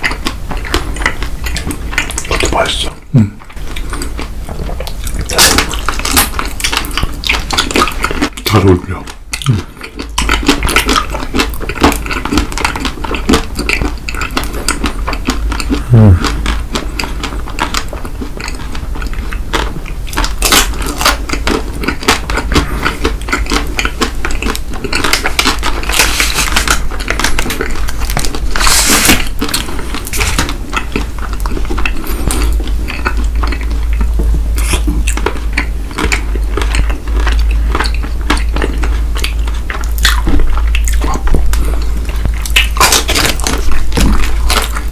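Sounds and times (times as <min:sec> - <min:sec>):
people chewing candy: 0:00.0 - 0:44.9.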